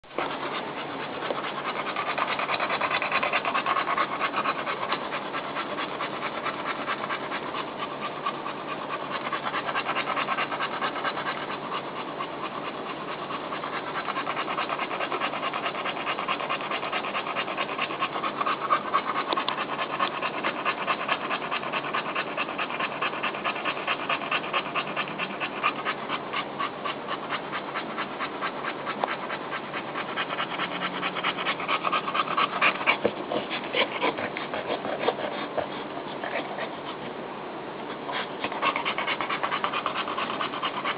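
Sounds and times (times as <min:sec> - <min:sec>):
dog panting rapidly: 0:00.0 - 0:40.9.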